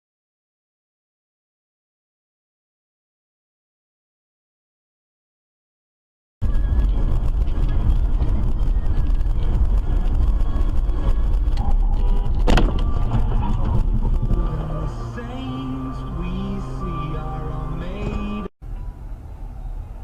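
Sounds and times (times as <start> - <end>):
car driving rumble: 6.4 - 20.0
sharp bang: 11.6 - 14.6.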